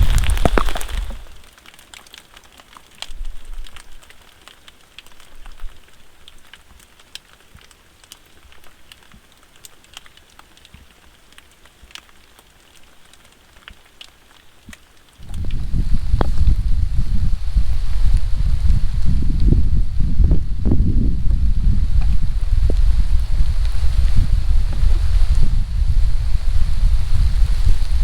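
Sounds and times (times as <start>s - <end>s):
rain patter: 0.0s - 28.0s
raindrops ticking on a surface: 0.0s - 28.0s
loud low rumble: 15.2s - 28.0s.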